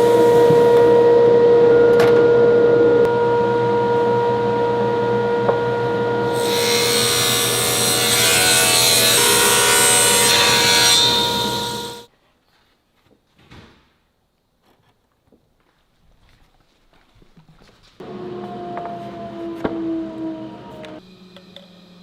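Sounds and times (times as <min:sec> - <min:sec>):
power tool cutting wood: 0:05.9 - 0:12.1, 0:18.0 - 0:21.0.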